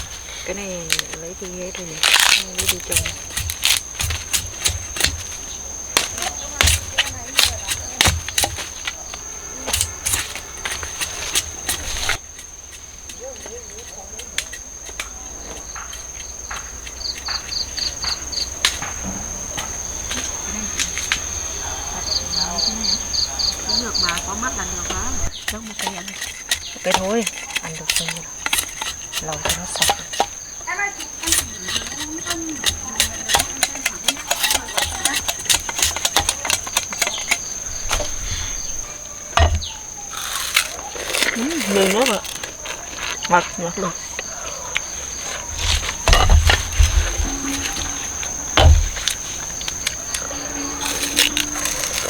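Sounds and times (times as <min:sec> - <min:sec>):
short insect chirps: 0:00.0 - 0:26.9
crickets droning: 0:00.0 - 0:52.0
sugar cane being cut by hand: 0:00.0 - 0:52.0.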